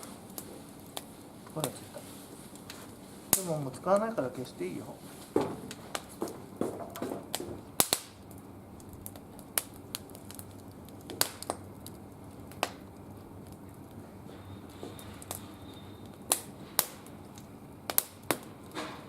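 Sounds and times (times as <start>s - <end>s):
low steady hiss: 0.0s - 6.2s
wood fire crackling and popping: 0.0s - 19.0s.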